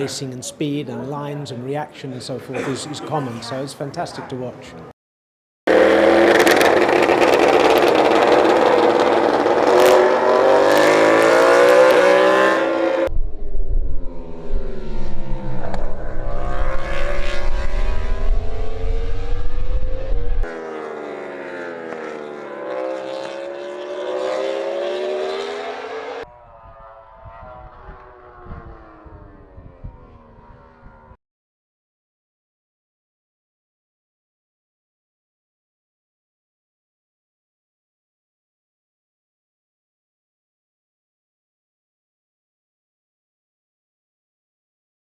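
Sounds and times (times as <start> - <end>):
racing engine at high revs: 5.7 - 13.1, 14.4 - 31.1.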